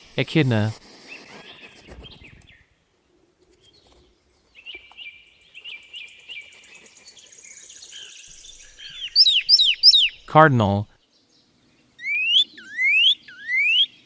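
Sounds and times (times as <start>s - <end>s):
bird chirps: 4.6s - 10.3s, 11.2s - 14.0s
high fine bird trill: 8.4s - 10.8s, 11.9s - 14.0s
whistled bird notes sliding down: 12.0s - 14.0s.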